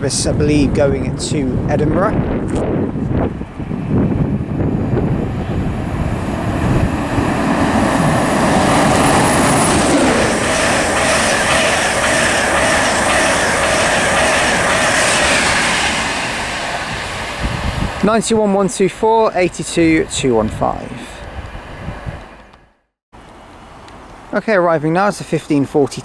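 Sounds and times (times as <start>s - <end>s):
train rushing past: 1.2s - 22.5s
falling whine: 3.6s - 18.0s.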